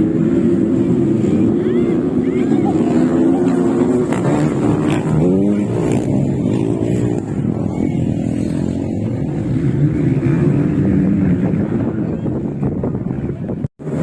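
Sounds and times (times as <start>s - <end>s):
motocross bike engines revving: 0.0s - 14.0s.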